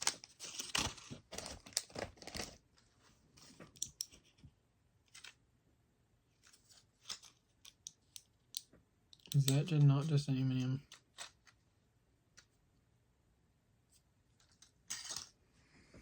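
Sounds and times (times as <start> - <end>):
plastic wrappers crinkling: 0.0 - 2.8.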